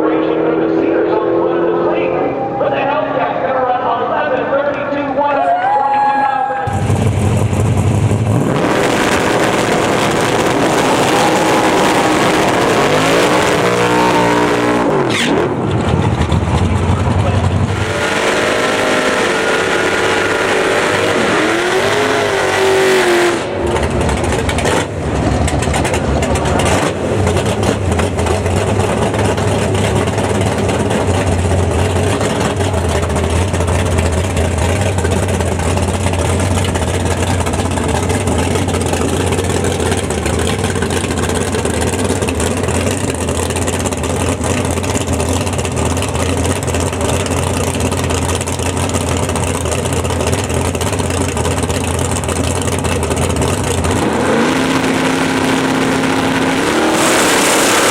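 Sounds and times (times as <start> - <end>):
engine revving: 0.0 - 4.3, 6.7 - 57.9
car engines running loudly: 0.0 - 6.0, 6.6 - 57.9.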